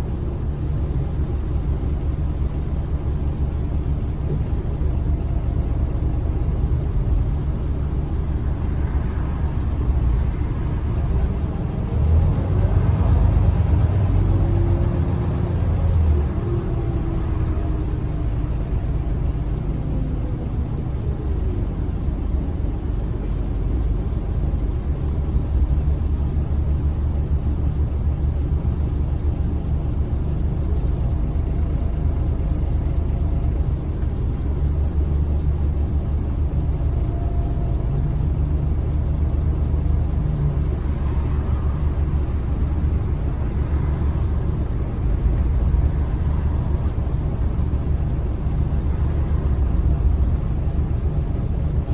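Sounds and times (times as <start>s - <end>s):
bus engine rumble: 0.0s - 51.9s
road noise: 0.0s - 51.9s.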